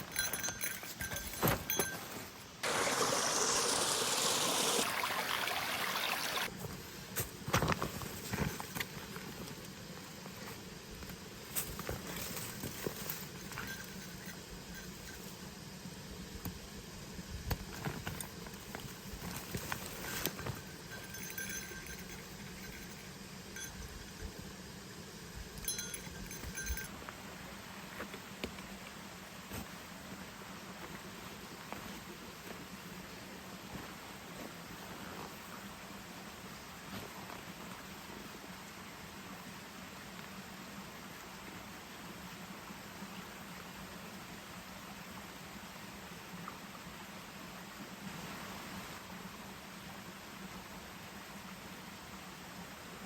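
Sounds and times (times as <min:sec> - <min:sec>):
light metallic clinks: 0:00.0 - 0:02.4, 0:11.7 - 0:15.5, 0:19.7 - 0:24.2, 0:25.5 - 0:27.0
steady background hiss: 0:00.0 - 0:53.0
stream water rushing: 0:02.6 - 0:06.5.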